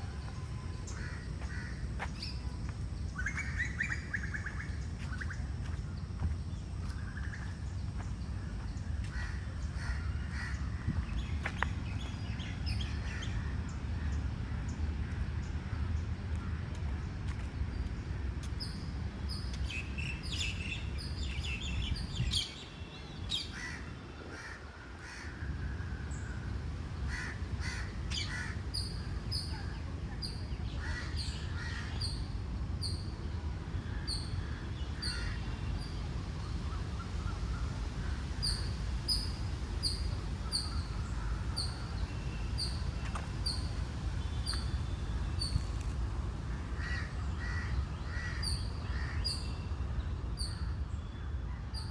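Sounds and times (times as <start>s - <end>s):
steady low rumble: 0.0s - 51.3s.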